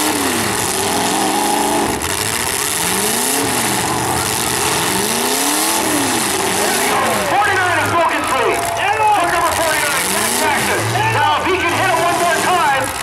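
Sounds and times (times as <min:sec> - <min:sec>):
truck engines revving: 0:00.0 - 0:13.0.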